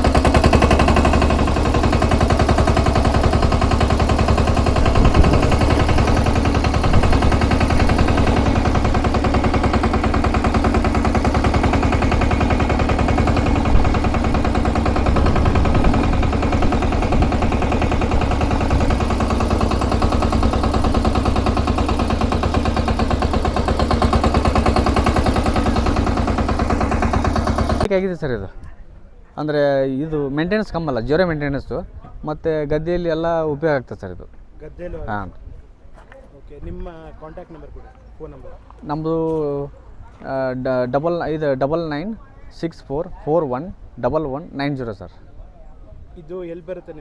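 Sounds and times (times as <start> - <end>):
engine knocks: 0.0 - 27.9
diesel tractor engine chugging: 0.0 - 28.0.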